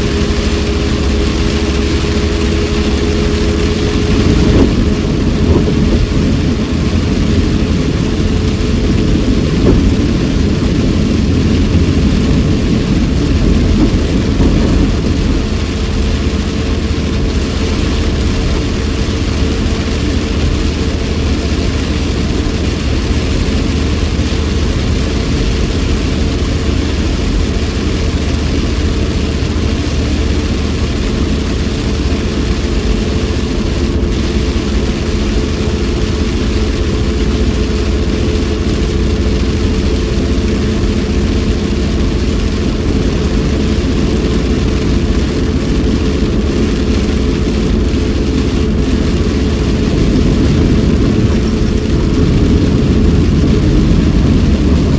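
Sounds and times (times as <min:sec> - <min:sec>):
car engine and tyre rumble: 0:00.0 - 0:54.9
rain and road spray hiss: 0:00.0 - 0:54.9.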